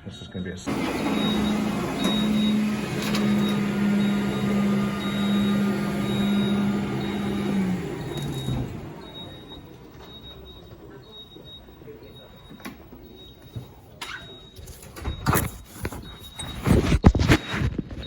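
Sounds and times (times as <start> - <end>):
floor cleaning machine motor hum: 0.7 - 13.3.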